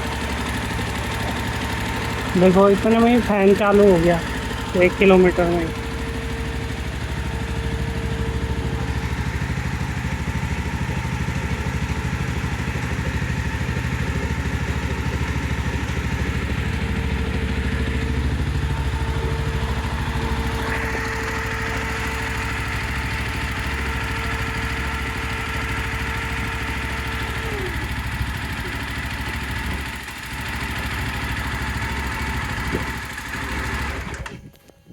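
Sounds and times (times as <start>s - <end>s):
motorcycle engine idling: 0.0s - 34.2s
radiator cooling fan: 0.0s - 34.9s.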